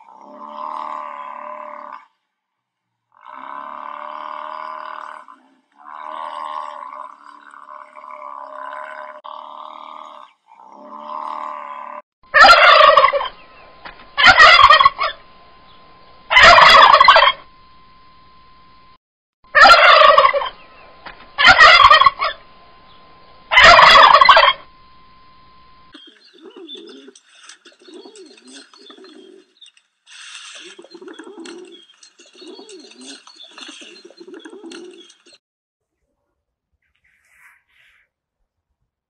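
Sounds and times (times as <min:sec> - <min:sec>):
large bird calling: 0:26.0 - 0:35.4.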